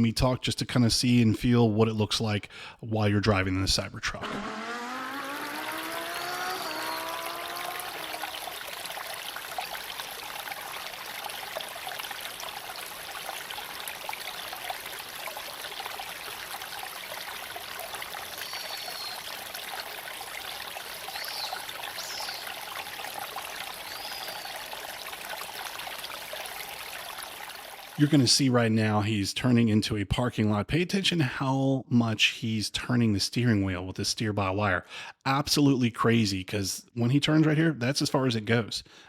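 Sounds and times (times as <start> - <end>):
electric motor whine: 4.2 - 8.6
tyre and road noise: 4.2 - 9.7.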